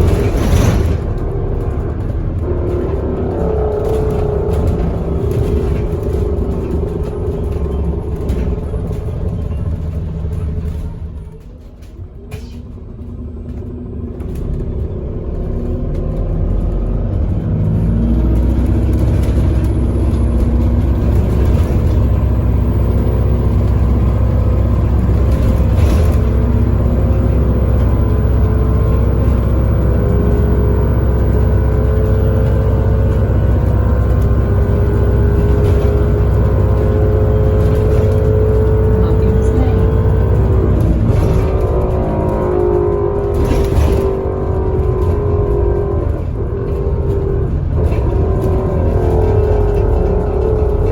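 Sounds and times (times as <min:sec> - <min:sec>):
bus diesel engine: 0:00.0 - 0:50.9
whine rising in pitch: 0:18.4 - 0:43.2.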